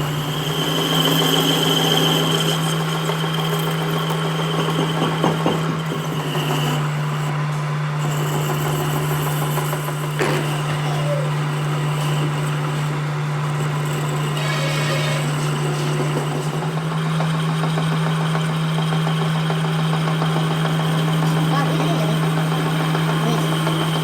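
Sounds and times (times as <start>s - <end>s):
machine motor humming: 6.2s - 24.0s.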